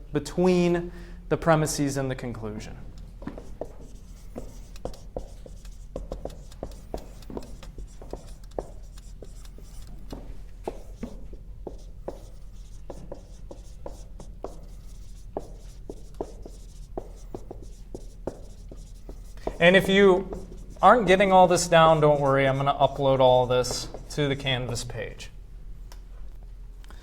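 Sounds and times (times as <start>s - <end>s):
low steady hum: 0.0s - 27.0s
pen scratching on paper: 3.0s - 24.3s.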